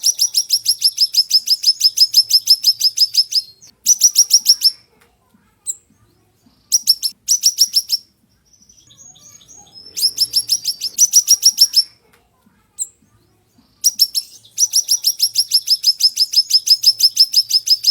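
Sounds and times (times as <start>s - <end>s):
songbird singing rapid trills: 0.0s - 4.8s, 5.6s - 12.0s, 12.8s - 17.9s.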